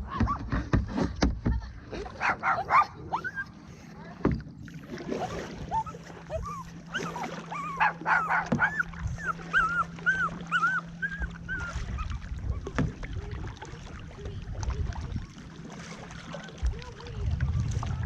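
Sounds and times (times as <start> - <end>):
low rumbling: 0.0 - 18.0
dog whimpering: 2.4 - 3.6, 5.2 - 12.7.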